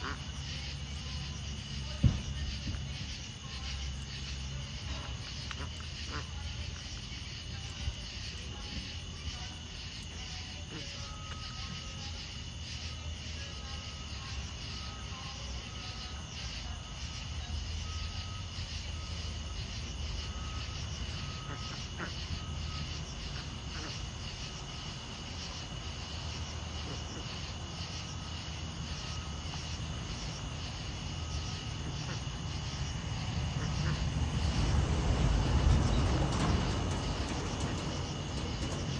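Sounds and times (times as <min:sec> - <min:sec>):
insects chirring: 0:00.0 - 0:38.9.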